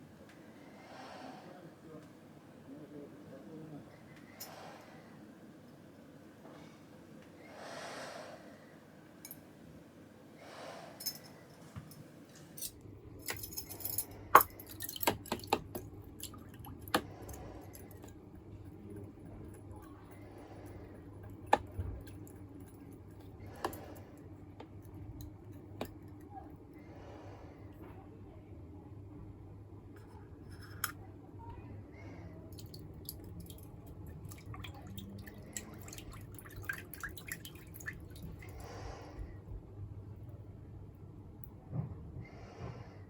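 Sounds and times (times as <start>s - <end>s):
faint low hum: 0.0s - 43.0s
metal and glass clinking: 12.6s - 15.4s.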